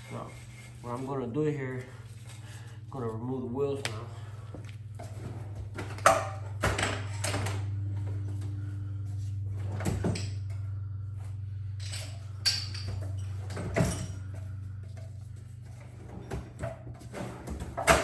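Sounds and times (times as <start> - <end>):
steady low hum: 0.0 - 18.0
metal tools knocking and clanking: 11.8 - 14.2.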